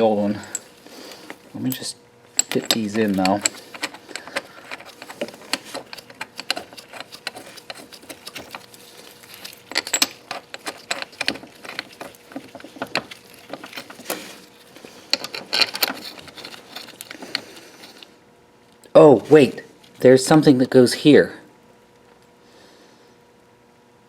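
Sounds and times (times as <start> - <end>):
metal tools clinking: 0.0 - 18.0.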